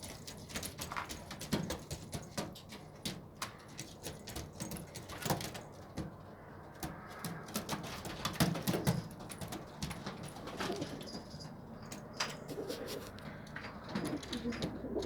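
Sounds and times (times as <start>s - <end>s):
pigeons cooing: 8.3s - 11.4s, 12.2s - 15.0s.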